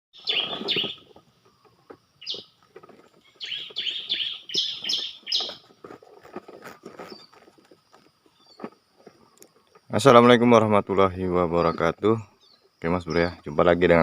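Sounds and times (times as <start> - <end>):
bird sharp falling calls: 0.2 - 2.5, 3.2 - 5.7.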